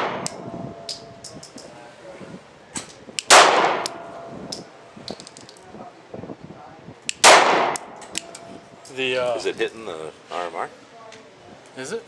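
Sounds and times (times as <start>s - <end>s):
pistol shots: 3.2s - 4.0s, 7.2s - 8.3s.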